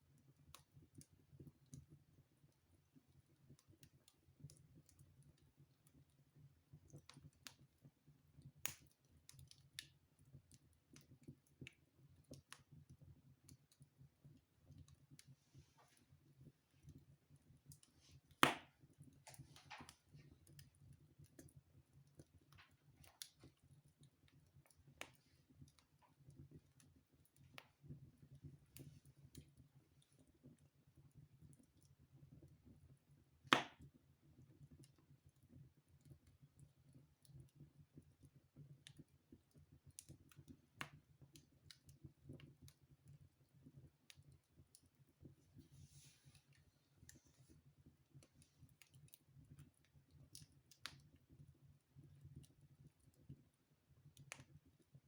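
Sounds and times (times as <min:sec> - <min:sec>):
wood fire crackling: 0:00.1 - 0:55.0
fire pops: 0:17.7 - 0:20.7.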